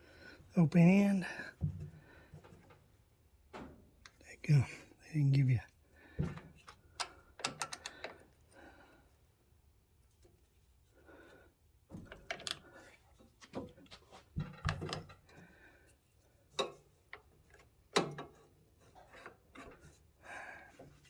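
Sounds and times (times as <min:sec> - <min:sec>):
wrench clicking and knocking on metal: 0:06.6 - 0:08.2.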